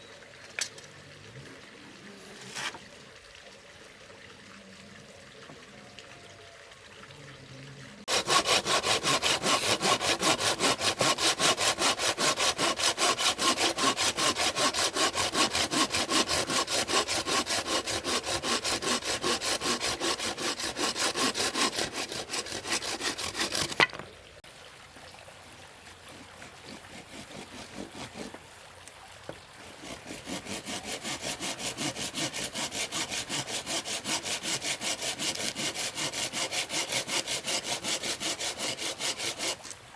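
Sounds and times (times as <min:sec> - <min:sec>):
hand saw cutting wood: 0:02.2 - 0:02.9, 0:08.0 - 0:24.0, 0:25.8 - 0:28.4, 0:29.6 - 0:39.8.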